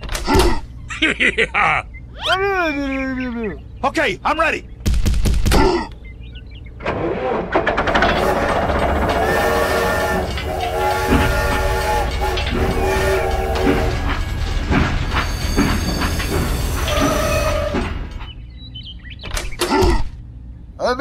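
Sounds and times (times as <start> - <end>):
toy locomotive chugging: 7.7 - 17.9
toy train whistle: 8.2 - 14.3.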